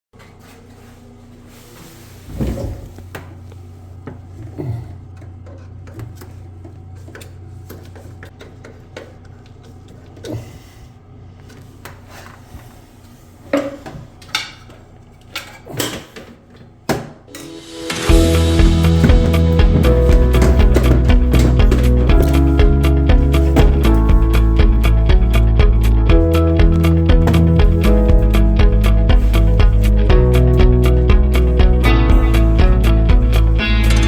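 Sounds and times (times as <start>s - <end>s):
steady low hum: 17.8s - 34.0s
hard objects knocking: 18.5s - 22.4s.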